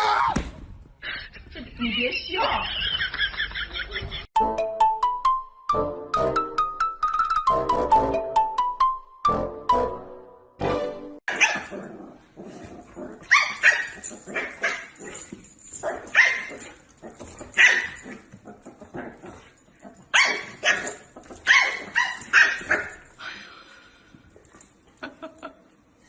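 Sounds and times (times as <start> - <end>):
dog barking: 11.3 - 11.7, 17.6 - 18.0, 20.1 - 23.0.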